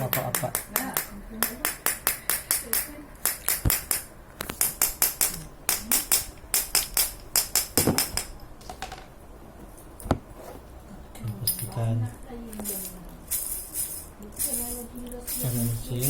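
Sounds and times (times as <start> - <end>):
metallic tapping on ball bearings: 0.0 - 9.0.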